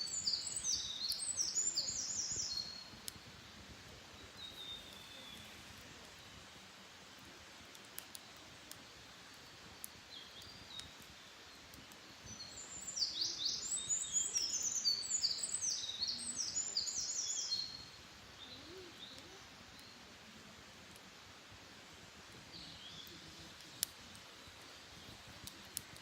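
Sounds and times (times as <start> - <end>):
low outdoor background: 0.0 - 26.0
faint clicks: 7.6 - 12.0, 23.0 - 24.3, 25.0 - 26.0.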